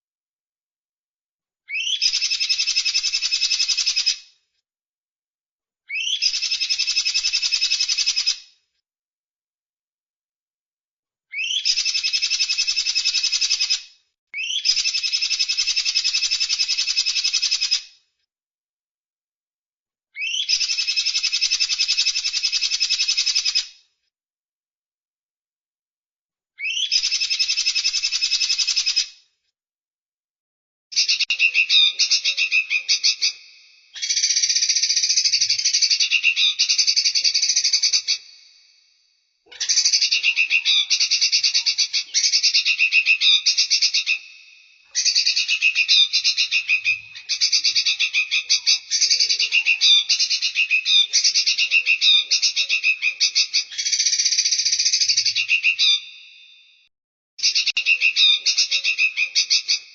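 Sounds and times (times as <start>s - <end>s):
recorded songbird trills: 1.7s - 4.2s, 5.9s - 8.5s, 11.3s - 13.8s, 14.4s - 17.9s, 20.2s - 23.8s, 26.6s - 29.2s, 30.9s - 59.9s.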